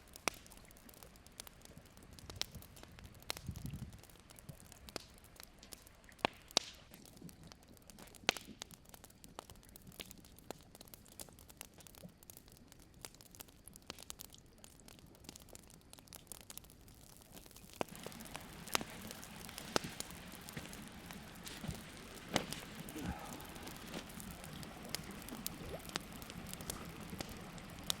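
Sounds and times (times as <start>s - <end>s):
campfire crackling and popping: 0.0s - 28.0s
faint hiss: 16.7s - 28.0s.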